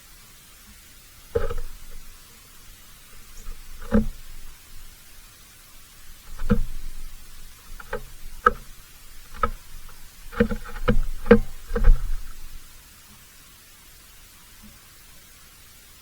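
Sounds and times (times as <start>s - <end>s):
irregular knocks: 1.4s - 5.2s, 5.9s - 12.7s.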